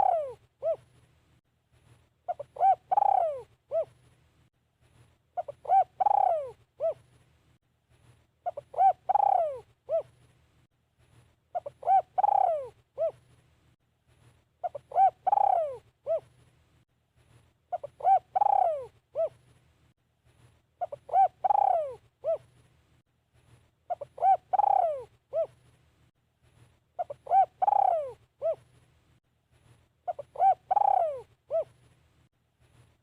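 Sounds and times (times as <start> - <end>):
dove cooing: 0.0 - 0.9, 2.3 - 4.0, 5.4 - 7.1, 8.4 - 10.2, 11.5 - 13.2, 14.6 - 16.3, 17.7 - 19.4, 20.8 - 22.5, 23.9 - 25.6, 27.0 - 28.7, 30.1 - 31.8.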